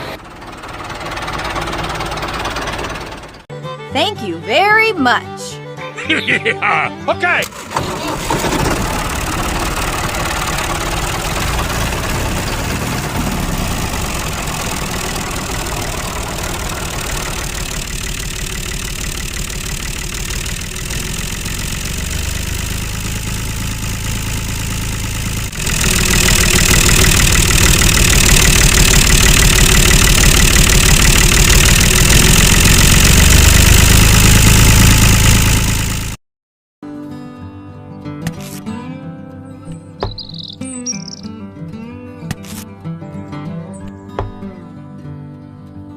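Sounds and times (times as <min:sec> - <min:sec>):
engine running: 0:00.0 - 0:03.5, 0:07.4 - 0:36.2, 0:40.0 - 0:41.2.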